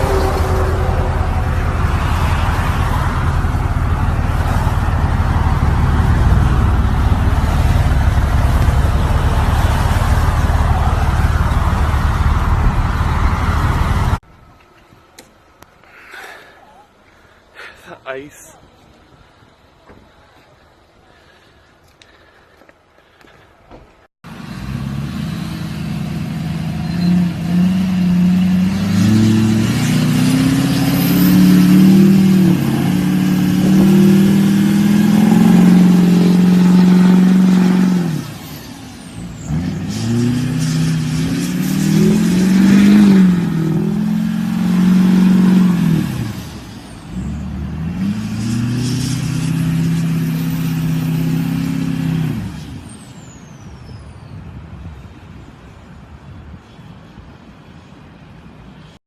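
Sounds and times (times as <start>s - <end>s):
truck engine revving: 0.0s - 14.2s, 24.3s - 53.2s.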